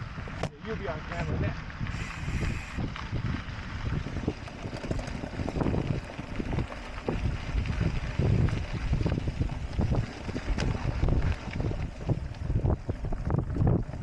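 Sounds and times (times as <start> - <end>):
wind buffeting microphone: 0.0 - 14.0
bike knocks and jolts: 3.0 - 14.0.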